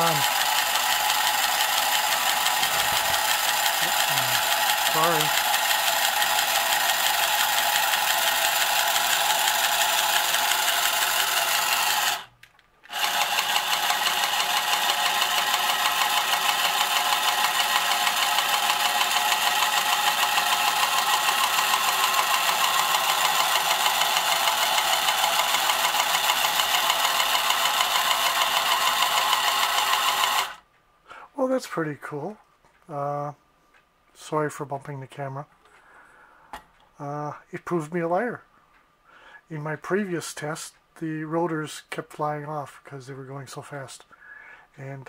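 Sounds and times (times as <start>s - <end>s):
toy electric motor whirring: 0.0s - 30.6s.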